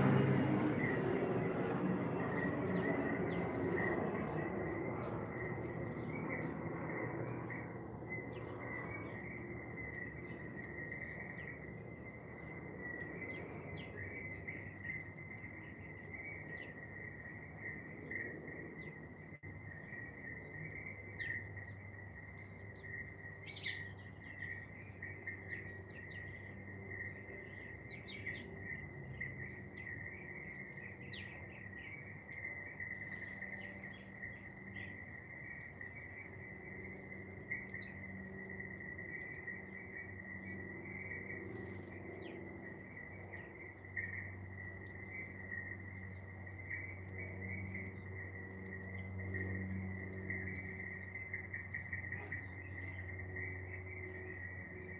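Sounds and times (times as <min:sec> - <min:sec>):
low steady hum: 0:00.0 - 0:54.9
high insect trill: 0:19.4 - 0:54.9
bird chirps and calls: 0:50.3 - 0:53.1.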